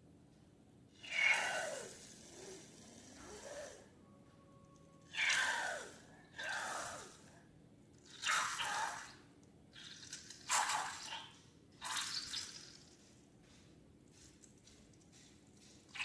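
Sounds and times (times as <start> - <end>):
wet squishy slime sounds: 7.9 - 16.0.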